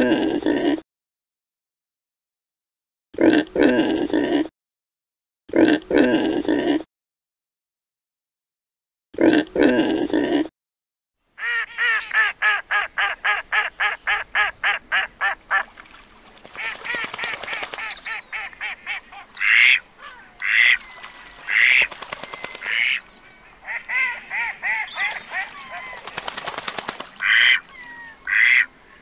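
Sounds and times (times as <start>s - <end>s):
ducks quacking: 11.4s - 15.8s, 16.5s - 29.0s.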